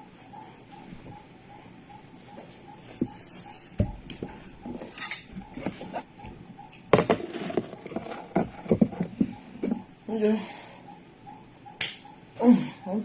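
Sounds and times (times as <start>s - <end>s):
cutlery clinking on a plate: 4.9s - 5.3s.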